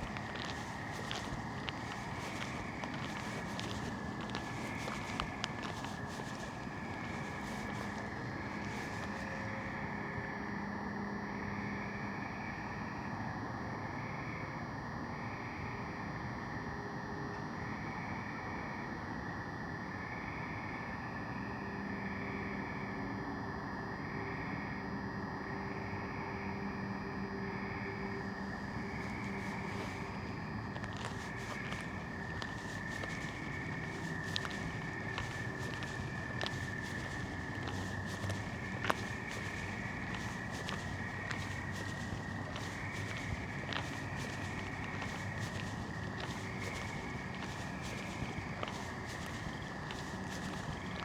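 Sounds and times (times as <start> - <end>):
continuous rushing hum: 0.0 - 10.2, 28.3 - 51.0.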